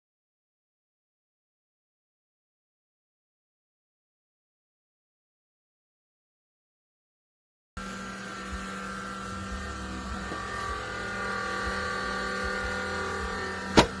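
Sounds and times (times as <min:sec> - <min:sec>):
small fans whirring: 0:07.8 - 0:14.0.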